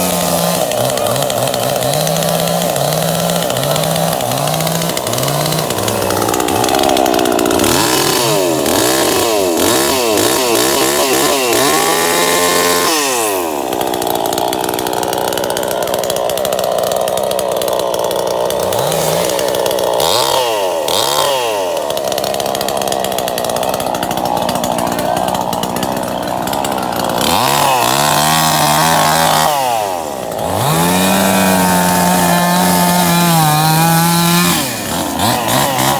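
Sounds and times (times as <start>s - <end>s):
engine revving: 0.0s - 16.5s, 17.2s - 35.9s.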